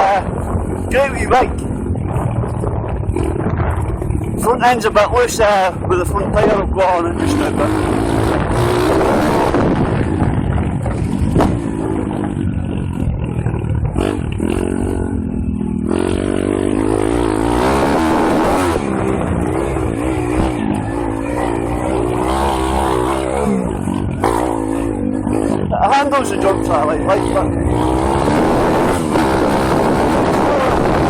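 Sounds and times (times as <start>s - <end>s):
motorbike engine revving: 0.0s - 31.0s.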